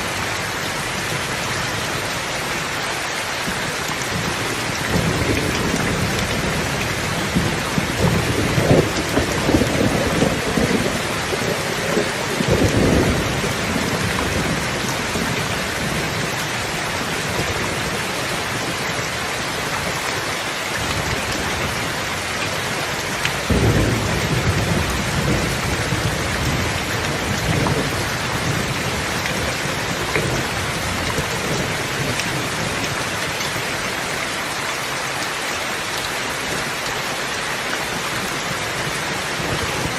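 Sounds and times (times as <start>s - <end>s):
steady rain: 0.0s - 39.9s
thunder rumbling: 3.6s - 18.1s, 23.4s - 33.0s.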